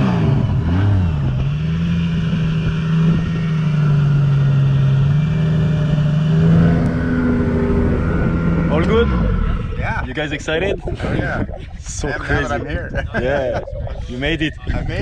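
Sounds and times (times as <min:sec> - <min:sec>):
car engine revving: 0:00.0 - 0:11.4.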